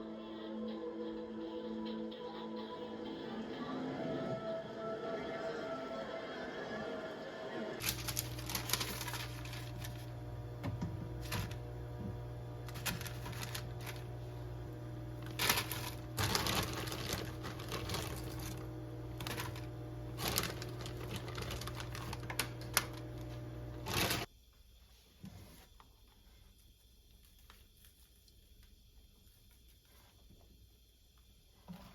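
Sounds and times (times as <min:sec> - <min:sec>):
background music: 0:00.0 - 0:07.8
steady low hum: 0:07.8 - 0:24.3.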